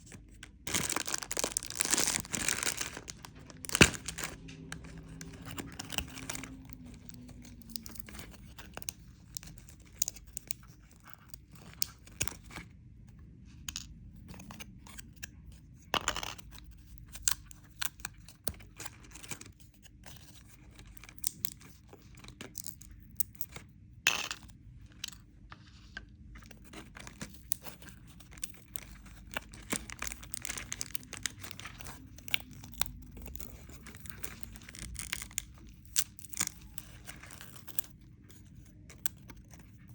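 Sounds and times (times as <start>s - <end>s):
wrapper crinkling and tearing: 0.0s - 12.4s, 26.4s - 39.9s
wrapper snaps: 0.4s - 4.4s, 27.0s - 37.9s.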